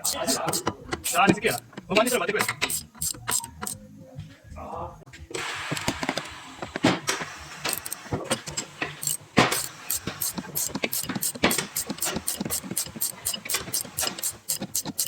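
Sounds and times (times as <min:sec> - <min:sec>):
metal hand tools clicking: 0:00.0 - 0:03.8, 0:07.6 - 0:15.0.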